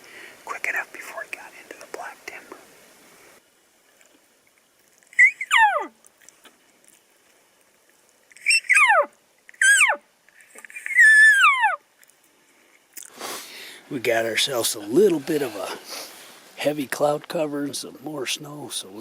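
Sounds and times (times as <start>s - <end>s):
elk mews: 5.2s - 6.0s, 8.4s - 10.0s, 10.6s - 11.8s.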